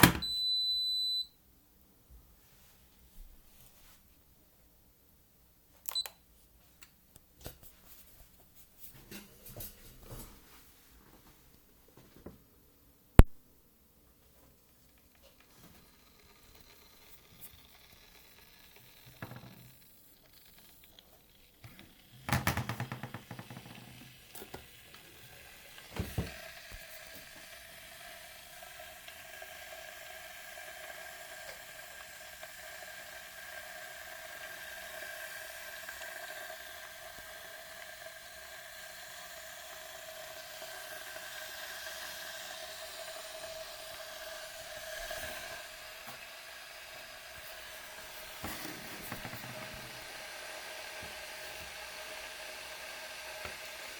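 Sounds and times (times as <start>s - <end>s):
kettle clicks: 0.0s - 0.4s, 14.9s - 30.3s, 31.0s - 53.9s
electric kettle heating water: 0.0s - 1.3s, 5.8s - 6.2s, 14.3s - 53.9s.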